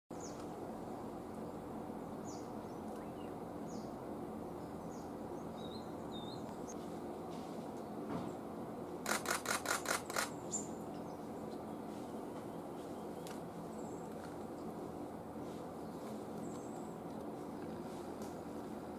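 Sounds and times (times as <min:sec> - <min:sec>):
small birds chirping: 0:00.1 - 0:06.9, 0:09.1 - 0:15.0, 0:15.7 - 0:17.3.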